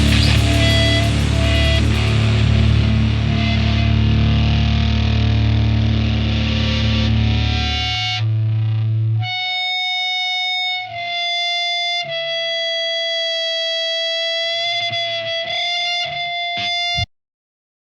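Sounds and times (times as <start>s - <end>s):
sustained high guitar note: 0.0s - 13.2s
distorted electric guitar music: 0.0s - 17.1s.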